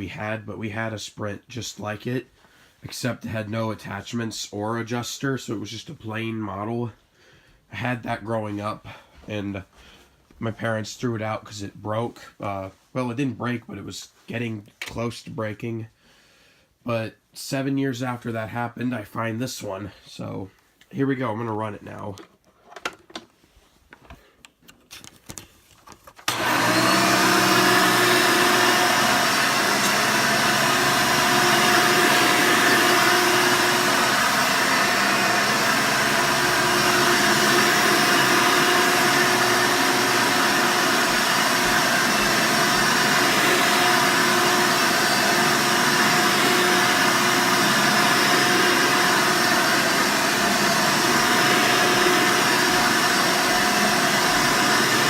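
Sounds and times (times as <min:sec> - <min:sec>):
vacuum cleaner running: 0:26.3 - 0:55.0.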